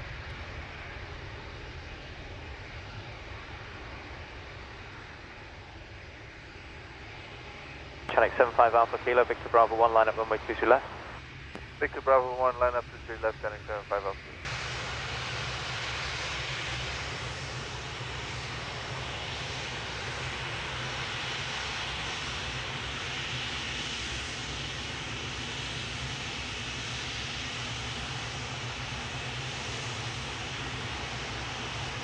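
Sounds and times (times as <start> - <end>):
jet engines running: 0.0 - 32.0.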